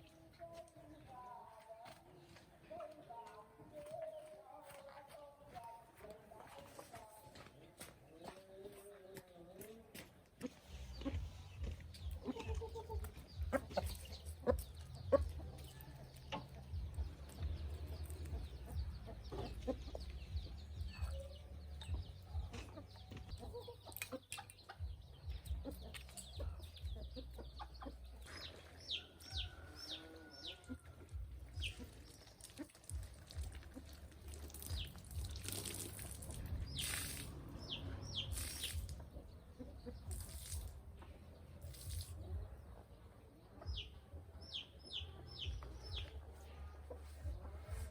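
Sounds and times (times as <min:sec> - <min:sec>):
birds chirping: 0:07.3 - 0:47.9
steady low rumble: 0:36.0 - 0:41.3.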